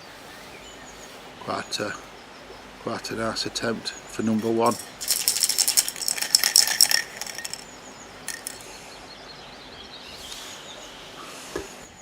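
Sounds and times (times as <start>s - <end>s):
rapid rattling clatter: 4.6s - 8.6s.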